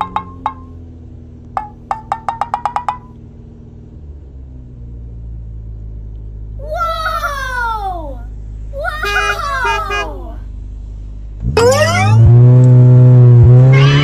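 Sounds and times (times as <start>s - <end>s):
short rising pitched beeps: 11.6s - 12.4s.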